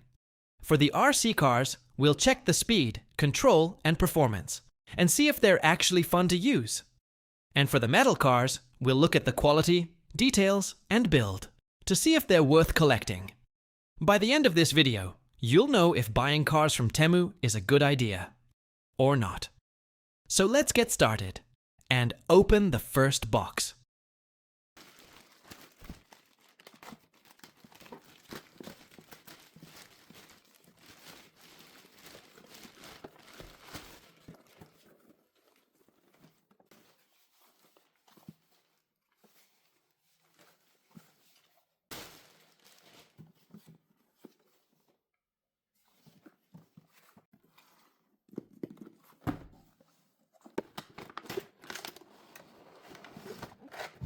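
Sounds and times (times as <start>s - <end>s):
plastic and paper crinkling: 24.8s - 44.8s, 50.4s - 54.0s.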